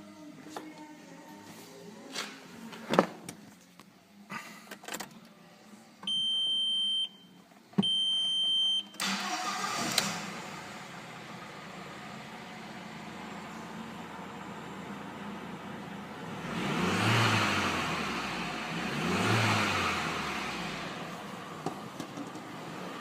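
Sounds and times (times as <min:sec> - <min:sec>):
car engine starting and idling: 0:08.9 - 0:23.0.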